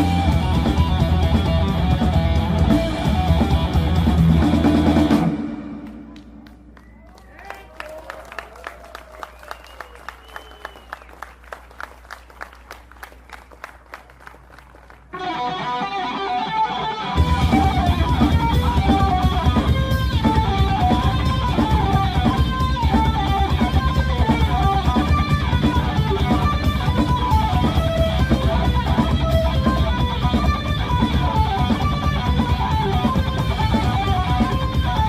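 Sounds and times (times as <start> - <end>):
electric guitar riff: 0.0 - 6.2, 15.1 - 35.0
bass and drums: 0.0 - 7.7, 15.1 - 35.0.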